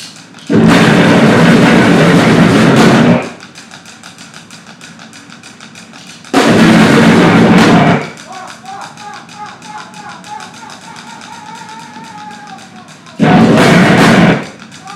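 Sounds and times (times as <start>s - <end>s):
rapid ticking: 0.0s - 14.9s
distorted noise blast: 0.5s - 3.4s, 6.3s - 8.2s, 13.2s - 14.7s.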